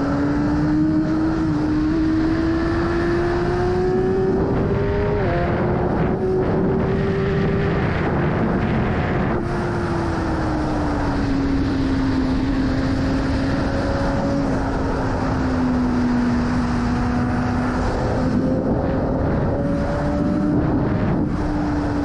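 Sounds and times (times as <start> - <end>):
wind rush on microphone: 0.0 - 22.0.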